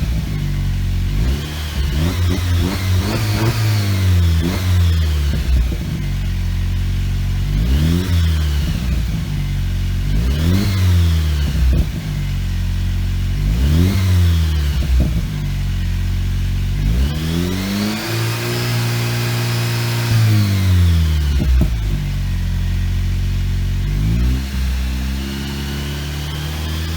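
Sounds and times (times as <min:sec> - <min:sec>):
car engine idling and revving: 0:00.0 - 0:26.9.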